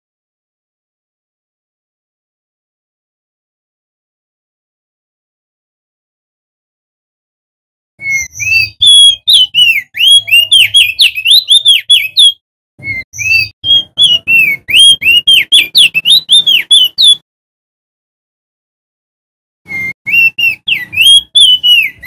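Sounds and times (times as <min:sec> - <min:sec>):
bird singing whistled notes: 0:08.0 - 0:17.2, 0:19.7 - 0:22.0.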